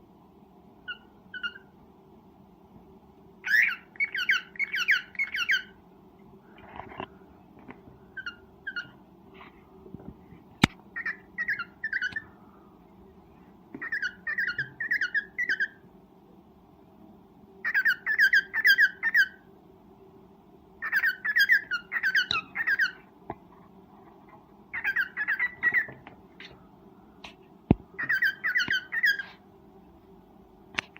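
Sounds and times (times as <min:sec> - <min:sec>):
cockatiel chirping: 0:00.8 - 0:01.7, 0:03.4 - 0:05.8, 0:08.1 - 0:09.0, 0:11.0 - 0:12.3, 0:13.8 - 0:15.8, 0:17.6 - 0:19.4, 0:20.8 - 0:23.1, 0:24.7 - 0:26.0, 0:28.0 - 0:29.4.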